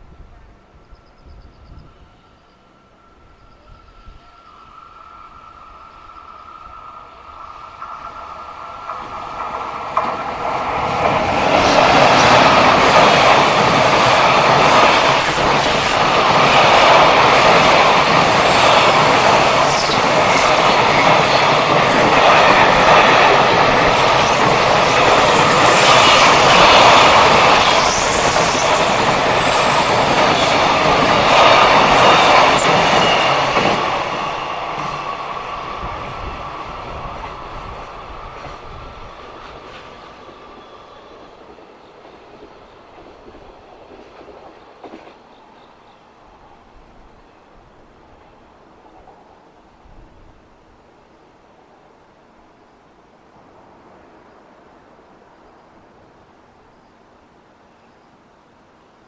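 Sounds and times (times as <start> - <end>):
freight train wheels clattering: 7.8 - 40.6.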